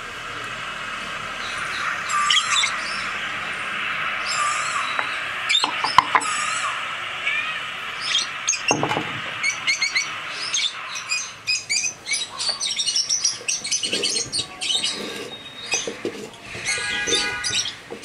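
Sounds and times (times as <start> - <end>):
small birds chirping: 1.2 - 17.8.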